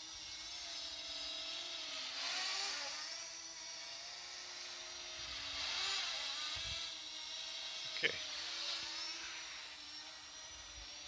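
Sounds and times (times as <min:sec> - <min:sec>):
quadcopter propellers whining: 0:00.0 - 0:11.0.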